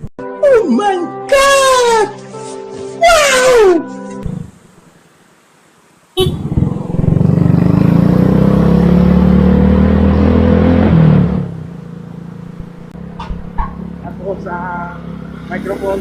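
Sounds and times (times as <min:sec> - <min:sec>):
motorcycle engine running: 0:06.2 - 0:10.0, 0:11.3 - 0:16.0.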